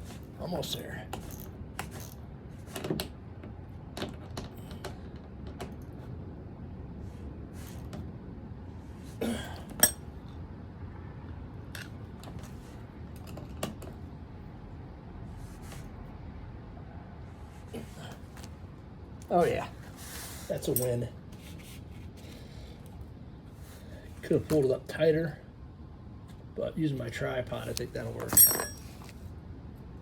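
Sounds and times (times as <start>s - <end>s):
metal tool clicks and knocks: 9.8s - 10.0s, 28.3s - 28.9s
ringing metal clink: 9.8s - 10.0s, 28.3s - 28.9s.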